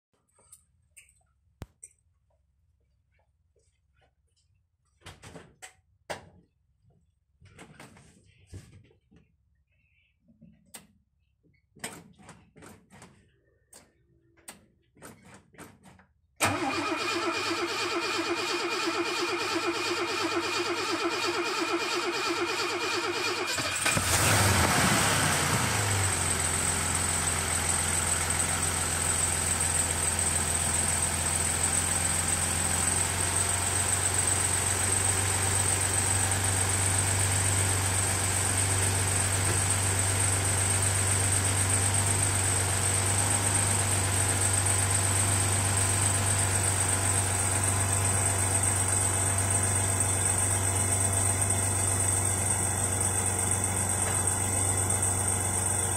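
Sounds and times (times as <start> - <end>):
car engine starting and idling: 16.4 - 55.9.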